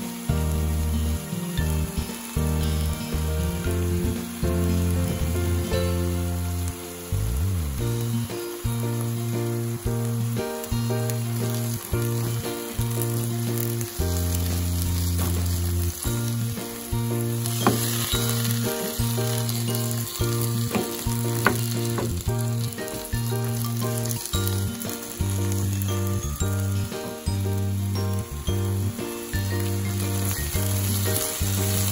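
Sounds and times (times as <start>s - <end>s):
low background music: 0.0s - 31.9s
vegetables sizzling in a pan: 0.0s - 31.9s
spatula knocking on pan: 17.5s - 18.2s, 20.6s - 23.0s.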